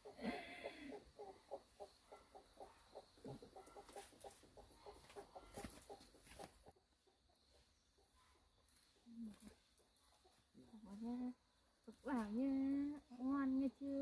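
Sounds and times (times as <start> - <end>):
chicken clucking: 0.0 - 11.2.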